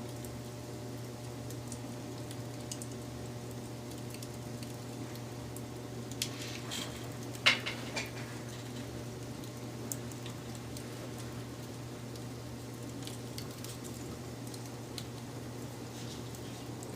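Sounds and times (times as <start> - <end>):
wood fire crackling: 0.0 - 16.9.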